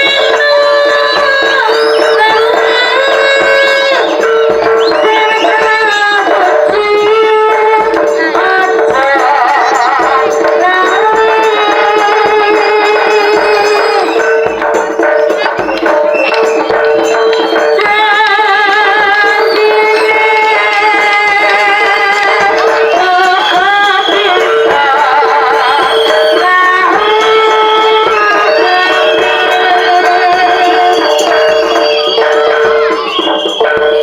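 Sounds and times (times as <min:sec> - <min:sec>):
drum and gamelan ensemble: 0:00.0 - 0:34.0.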